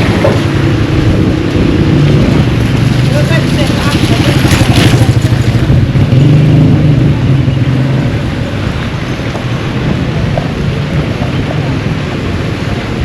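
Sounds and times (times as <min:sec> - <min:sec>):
vehicle engine pulsing hum: 0:00.0 - 0:13.0.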